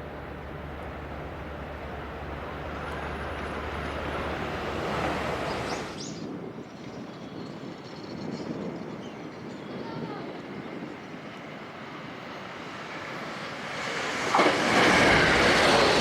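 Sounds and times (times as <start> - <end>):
electric train passing fast: 0.0 - 6.7, 11.0 - 16.0.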